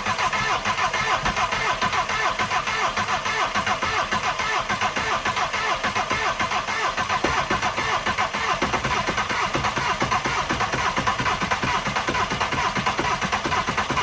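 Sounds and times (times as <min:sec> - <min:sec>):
diesel engine cranking: 0:06.6 - 0:09.5.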